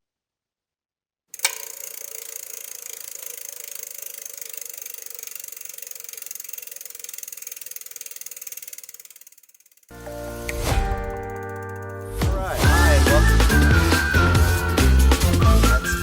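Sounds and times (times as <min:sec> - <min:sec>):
bicycle freewheel ratchet ticking: 0:01.3 - 0:10.0.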